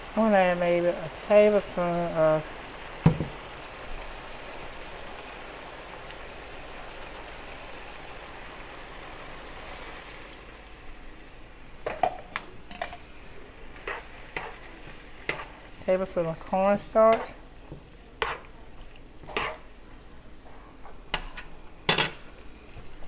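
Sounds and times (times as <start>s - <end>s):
meat sizzling in a pan: 0.0s - 20.5s
utensil clinking against pan: 21.1s - 22.4s.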